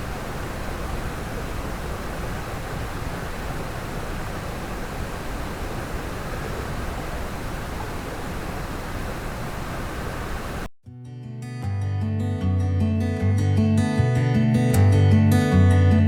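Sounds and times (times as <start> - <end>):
stream rushing over rocks: 0.0 - 10.7.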